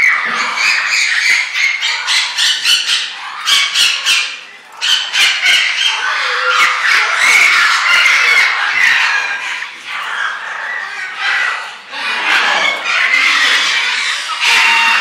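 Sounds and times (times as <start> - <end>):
flock of birds squawking: 0.0 - 15.0.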